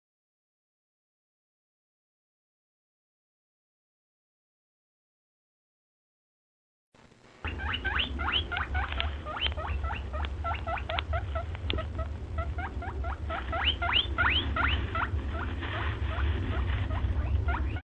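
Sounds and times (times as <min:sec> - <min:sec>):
low hum: 0:07.0 - 0:17.8
small animal squeaking: 0:07.4 - 0:17.8.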